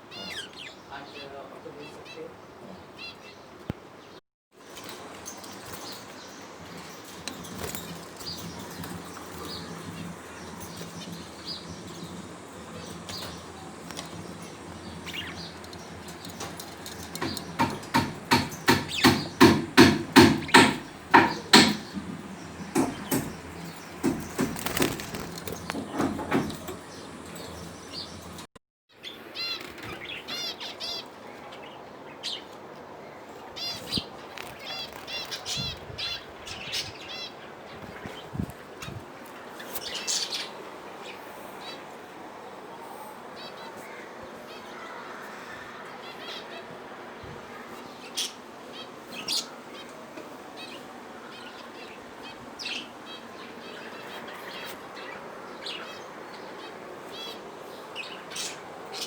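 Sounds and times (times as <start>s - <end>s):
budgerigars chirping: 8.2s - 28.4s
loud regular beats: 9.5s - 24.8s.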